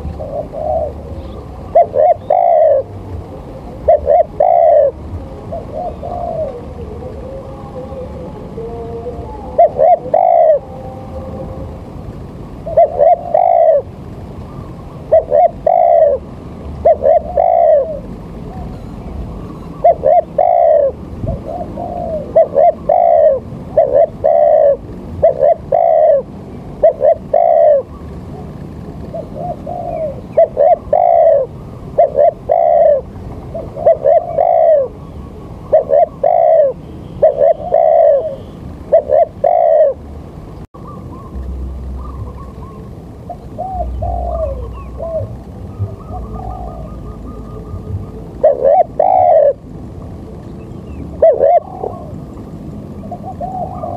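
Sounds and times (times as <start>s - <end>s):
bird calling: 0.0s - 11.4s, 12.6s - 49.7s, 50.3s - 53.9s.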